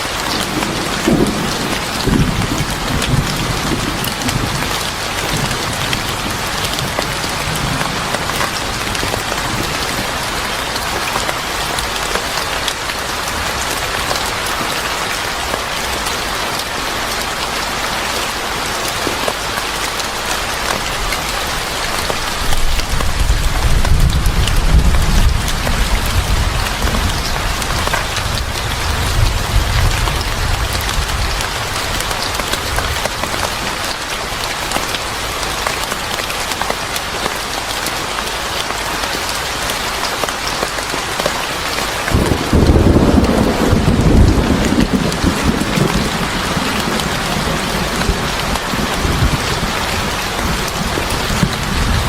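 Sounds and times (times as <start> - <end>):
heavy rain: 0.0 - 52.0
thunder rumbling: 0.4 - 11.1, 22.5 - 32.8, 42.1 - 52.0.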